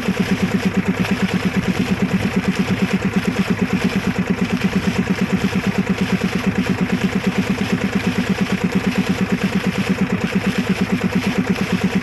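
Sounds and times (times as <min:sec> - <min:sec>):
engine idling with even thudding: 0:00.0 - 0:12.0.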